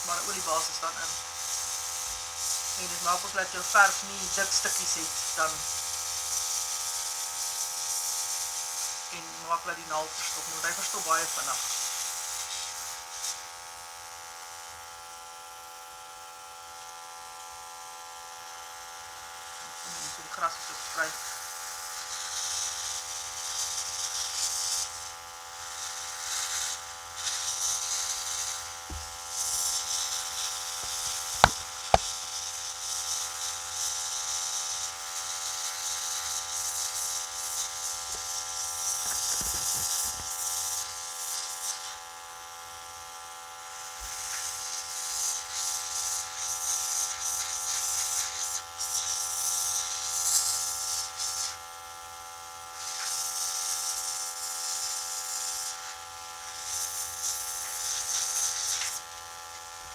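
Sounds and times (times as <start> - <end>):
airbrush compressor humming: 30.6 - 32.1
airbrush spraying hiss: 30.8 - 32.1.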